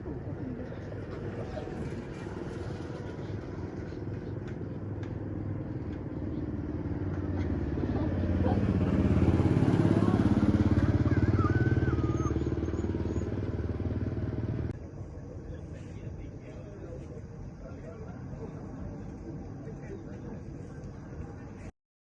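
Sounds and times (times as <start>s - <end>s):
small engine running: 0.8s - 14.7s.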